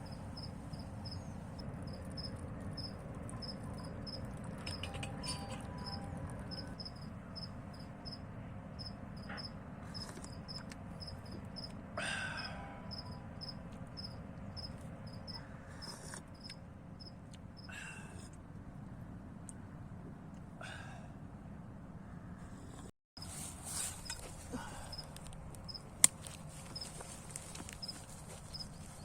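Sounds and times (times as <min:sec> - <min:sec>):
cricket chirping: 0:00.0 - 0:17.7, 0:24.0 - 0:25.9.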